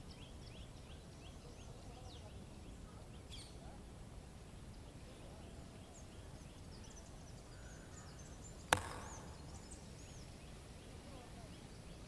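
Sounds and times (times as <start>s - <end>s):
outdoor background noise: 0.0s - 12.0s
small birds chirping: 0.0s - 12.0s
sharp knock: 8.7s - 9.6s.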